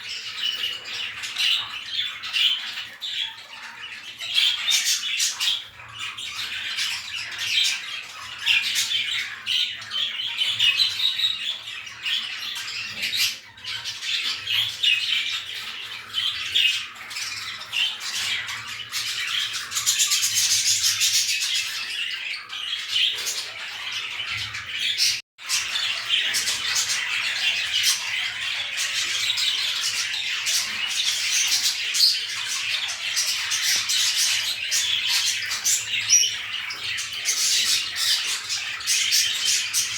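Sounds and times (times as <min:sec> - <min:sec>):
pet birds chattering and squawking: 0:00.0 - 0:39.9.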